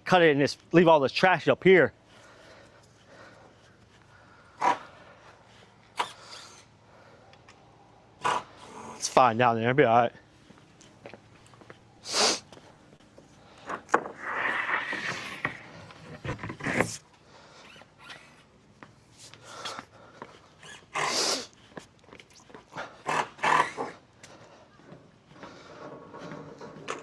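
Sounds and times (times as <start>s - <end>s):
hazy scraping: 13.2s - 17.0s
short rushes of noise: 13.6s - 17.0s.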